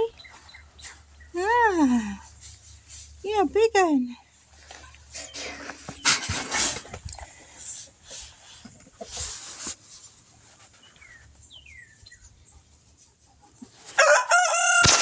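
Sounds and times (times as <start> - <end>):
brief rustle: 5.2 - 7.2
rooster crowing: 14.0 - 15.0.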